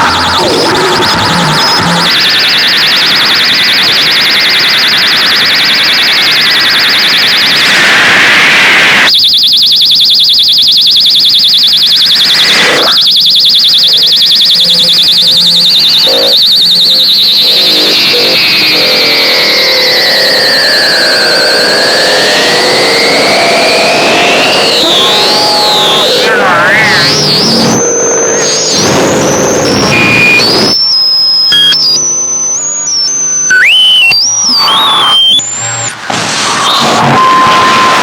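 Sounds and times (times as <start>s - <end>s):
harsh electronic noise music: 0.0s - 38.0s
piercing high-pitched tone: 0.0s - 38.0s
sharp noise burst: 13.8s - 38.0s
sliding whistling tone: 29.4s - 38.0s.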